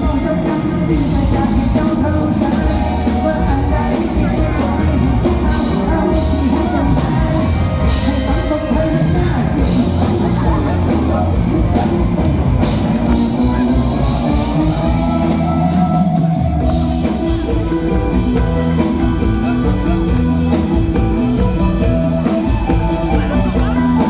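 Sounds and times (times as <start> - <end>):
drum kit steady beat: 0.0 - 24.0
live band music: 0.0 - 24.0.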